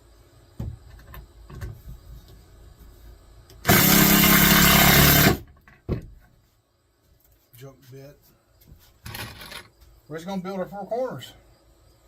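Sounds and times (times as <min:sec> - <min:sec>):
screw gun driving screw into wood: 0:03.6 - 0:05.4.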